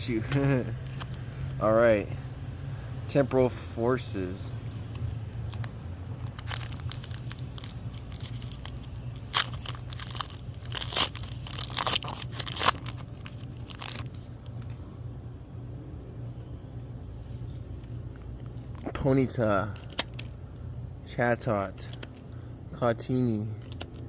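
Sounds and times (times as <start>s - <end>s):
steady low hum: 0.0s - 24.0s
foil wrapper tearing and crinkling: 5.4s - 14.8s.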